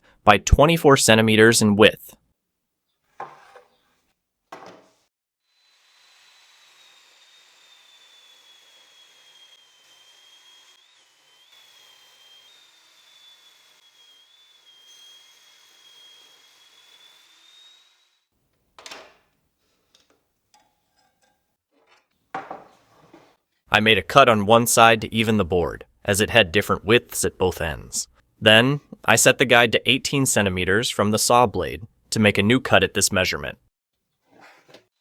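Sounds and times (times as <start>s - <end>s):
wood knocks: 4.5s - 5.0s, 22.4s - 22.8s
table saw cutting wood: 5.4s - 18.3s.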